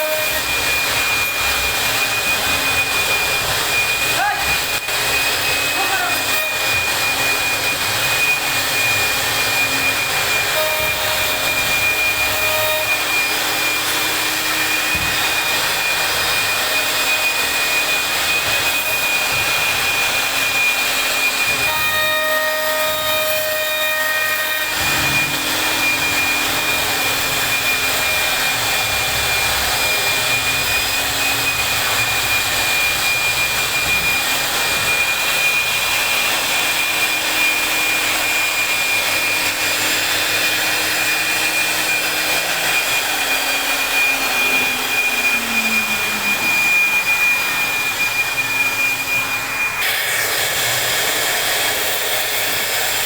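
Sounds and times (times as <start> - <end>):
router spindle whine: 0.0 - 53.0
lower pitched tone: 23.9 - 35.6, 42.2 - 49.8.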